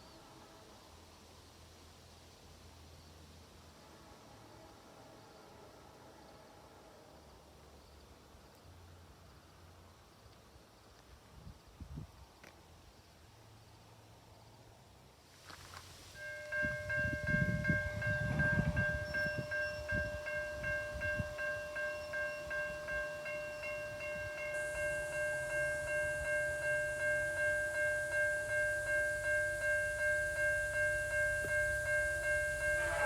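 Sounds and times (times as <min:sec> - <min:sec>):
level crossing warning bell: 0:16.2 - 0:33.0.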